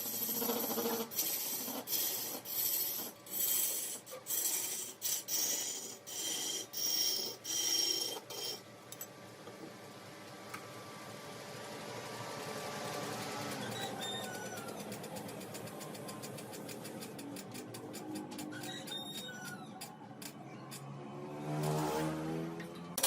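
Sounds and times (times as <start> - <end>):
tool rasping against turning wood: 0.0 - 8.6.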